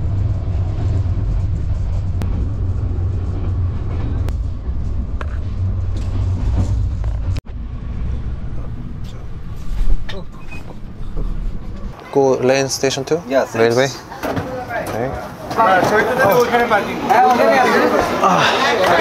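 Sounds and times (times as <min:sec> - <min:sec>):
train low rumble: 0:00.0 - 0:12.1.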